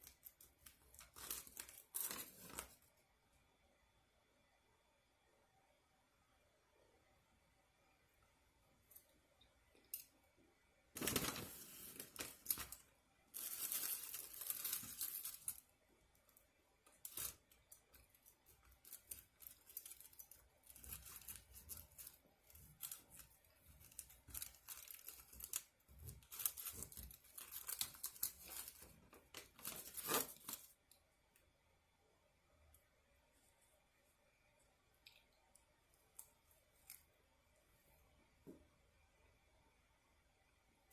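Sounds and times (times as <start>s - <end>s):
paper wrapping tearing and crinkling: 0.0s - 2.8s, 11.0s - 15.6s, 17.0s - 30.7s.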